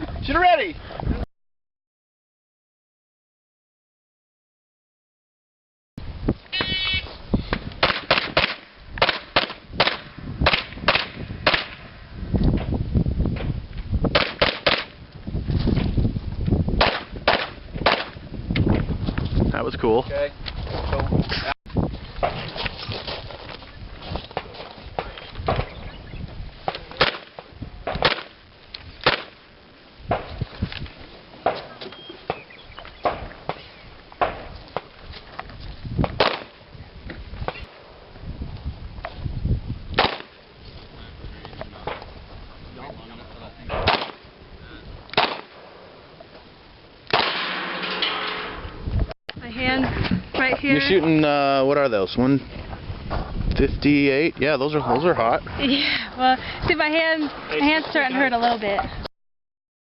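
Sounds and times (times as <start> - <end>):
handgun shots: 7.8 - 11.8, 14.2 - 14.9, 26.7 - 27.3, 36.2 - 36.5, 40.0 - 40.3, 43.8 - 44.2, 45.2 - 45.6, 47.1 - 48.4.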